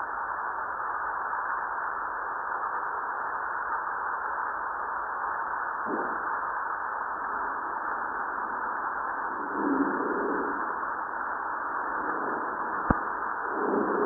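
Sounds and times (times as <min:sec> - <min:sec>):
steady hiss of ground noise: 0:00.0 - 0:14.0
faint low rumble: 0:04.2 - 0:14.0.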